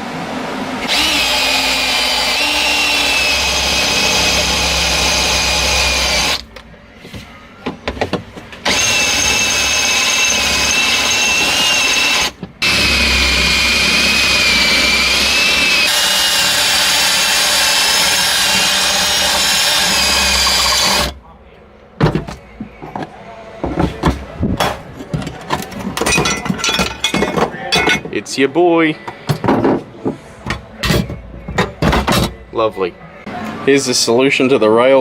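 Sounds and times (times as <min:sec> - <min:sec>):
power tool whining: 0:00.8 - 0:06.5, 0:08.6 - 0:21.2.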